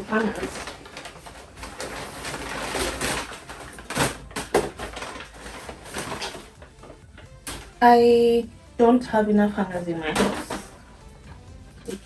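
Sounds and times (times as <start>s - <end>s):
wrapping rustling: 0.0s - 7.8s.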